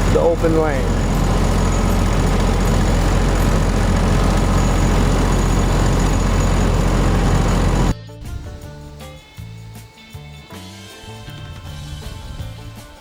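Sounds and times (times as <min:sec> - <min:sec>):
engine droning steadily: 0:00.0 - 0:08.0.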